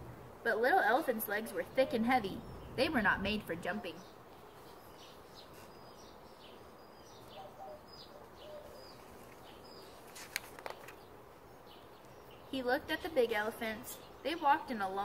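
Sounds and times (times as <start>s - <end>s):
birds chirping: 0.0s - 15.0s
book page turning: 9.0s - 11.1s.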